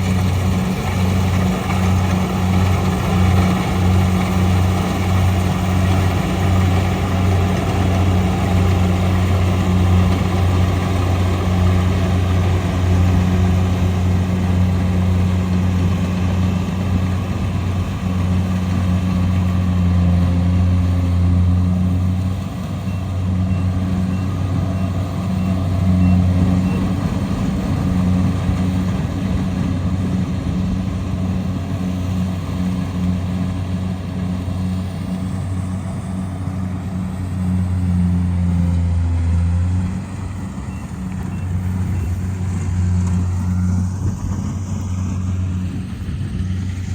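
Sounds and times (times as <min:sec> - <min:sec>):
combine harvester engine humming: 0:00.0 - 0:46.9.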